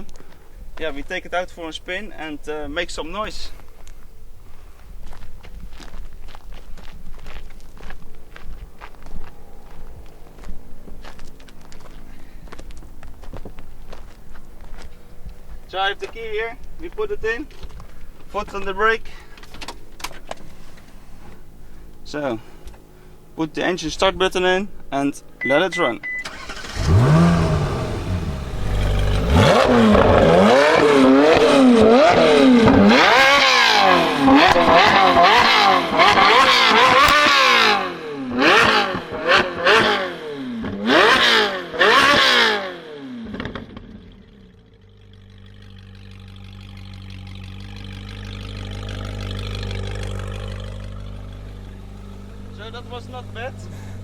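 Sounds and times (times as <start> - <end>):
car engine idling: 9.3 - 32.8, 43.2 - 54.0
car engine revving: 20.8 - 54.0.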